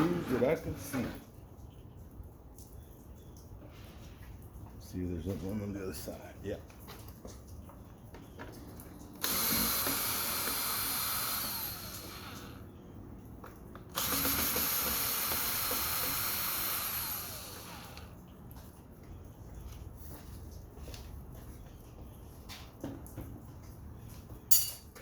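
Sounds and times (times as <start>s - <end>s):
power drill running: 9.2s - 12.7s, 13.9s - 18.1s.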